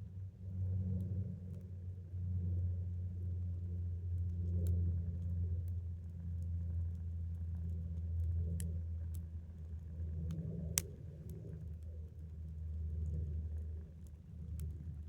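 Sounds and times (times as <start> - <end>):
campfire crackling: 3.6 - 15.0.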